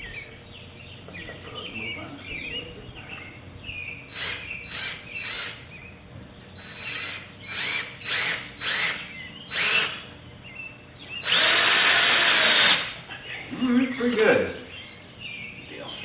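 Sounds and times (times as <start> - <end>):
cordless drill driving screws: 6.6 - 10.0, 11.2 - 12.9.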